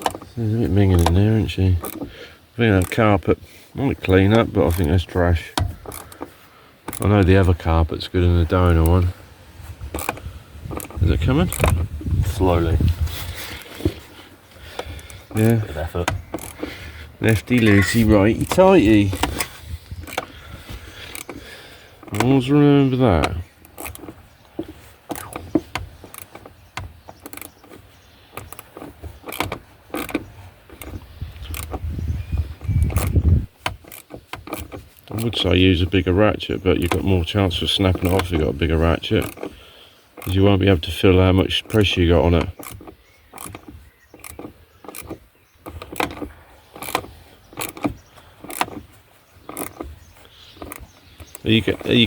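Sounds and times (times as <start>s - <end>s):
socket ratchet clicking: 14.8s - 16.8s, 17.4s - 20.3s, 23.5s - 24.2s, 25.0s - 35.4s, 39.0s - 40.4s, 41.6s - 52.0s.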